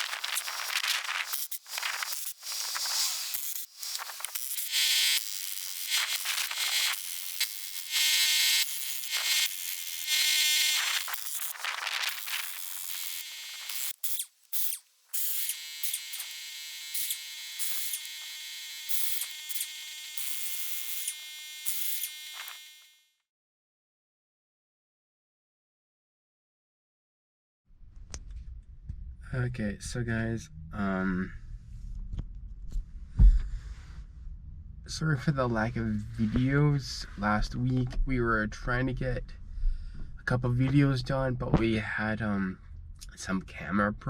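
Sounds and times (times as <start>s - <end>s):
small electric motor whining: 0.0s - 23.0s.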